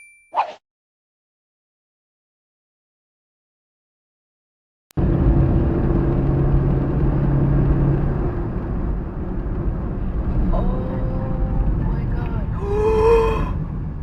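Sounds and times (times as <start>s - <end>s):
car engine hum: 5.0s - 14.0s
road noise rumble: 5.0s - 14.0s.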